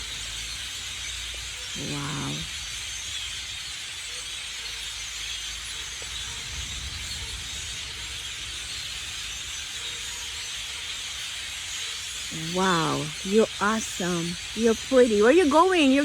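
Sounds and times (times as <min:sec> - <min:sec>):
flock of birds chattering: 0:01.3 - 0:03.6, 0:05.6 - 0:16.0.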